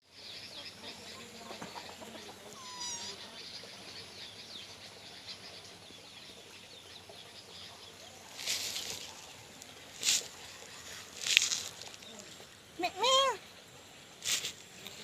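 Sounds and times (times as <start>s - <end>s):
small birds chirping: 0.0s - 15.0s
kitten meow: 2.6s - 3.2s.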